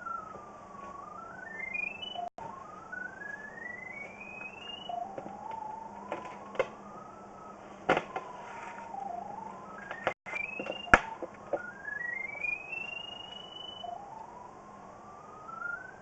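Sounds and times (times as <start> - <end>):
pipe locator tone: 0.0 - 7.6.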